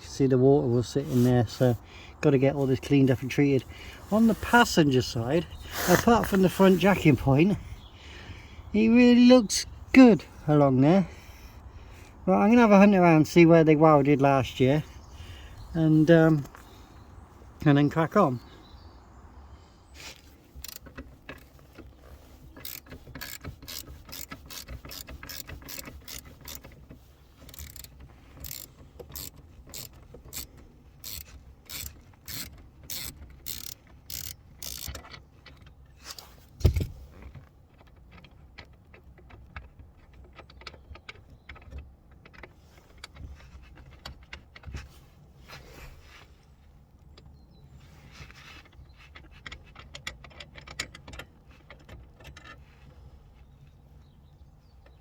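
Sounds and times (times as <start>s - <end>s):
hand ratchet clicking: 22.6s - 35.6s.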